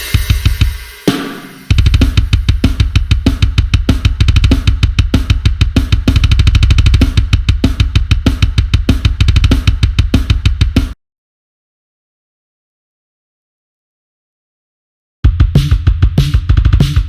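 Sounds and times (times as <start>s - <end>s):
drum kit groove: 0.0s - 11.0s, 15.2s - 17.0s.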